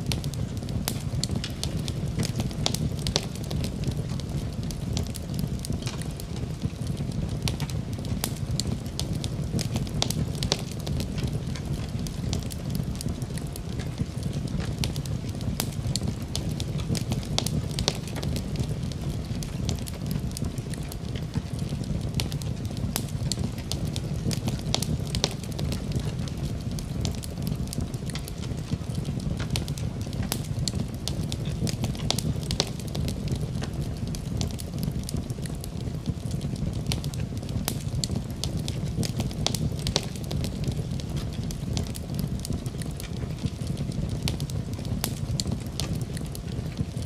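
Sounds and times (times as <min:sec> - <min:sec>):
fire crackling: 0:00.0 - 0:47.0.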